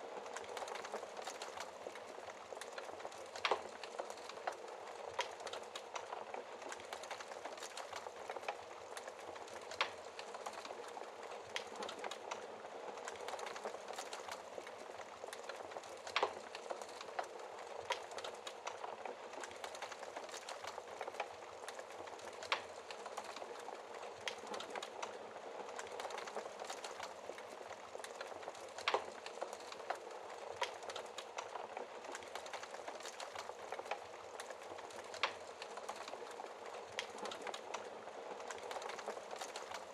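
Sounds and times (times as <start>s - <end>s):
wood fire crackling: 0.0s - 39.9s
fire pops: 13.0s - 25.1s.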